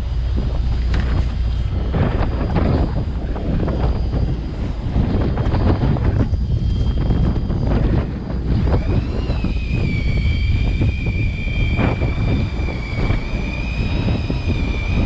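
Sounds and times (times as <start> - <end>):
boat engine rumble: 0.0 - 15.0
sea: 0.0 - 15.0
small motor high whine: 0.0 - 15.0
wind buffeting microphone: 0.0 - 15.0.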